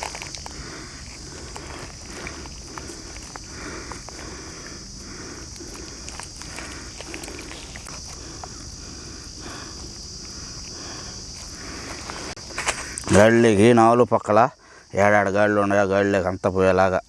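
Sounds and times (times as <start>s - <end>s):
hands squishing wet marinade: 0.0s - 8.6s
insects chirring: 0.0s - 17.0s.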